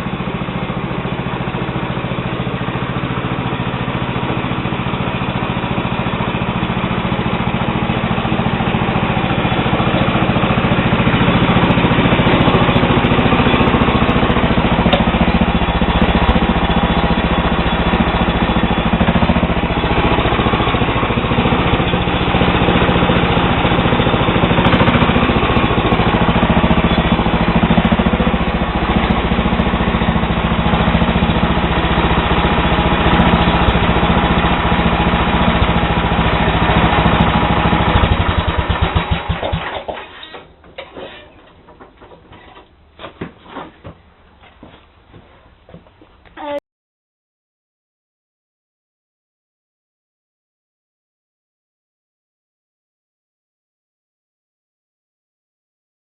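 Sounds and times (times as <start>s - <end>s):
garden tractor engine running: 0.0s - 46.6s.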